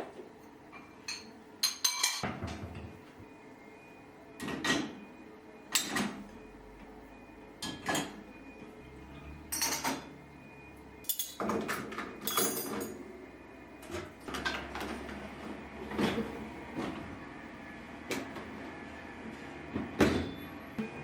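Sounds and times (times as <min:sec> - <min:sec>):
objects clinking and knocking: 0:11.1 - 0:13.0.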